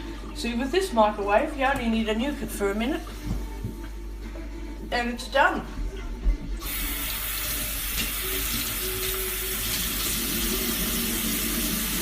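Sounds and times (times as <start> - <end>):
tap water running into sink: 6.6 - 12.0.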